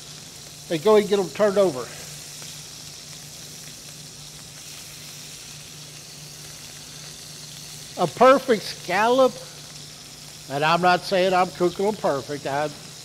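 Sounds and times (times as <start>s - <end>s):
scallops sizzling in oil: 0.0s - 13.0s.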